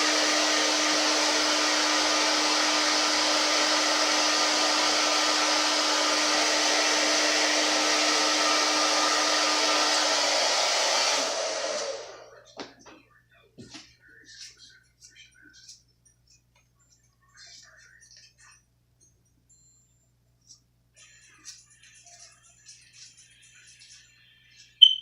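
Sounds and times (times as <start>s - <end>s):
blow dryer winding down: 0.0s - 12.3s
hand-held blow dryer running: 0.0s - 12.3s.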